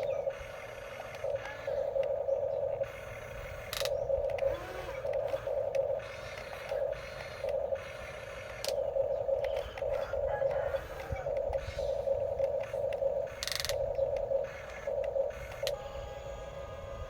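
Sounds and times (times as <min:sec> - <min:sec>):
small electric motors whining: 0:00.0 - 0:02.2, 0:02.8 - 0:17.0.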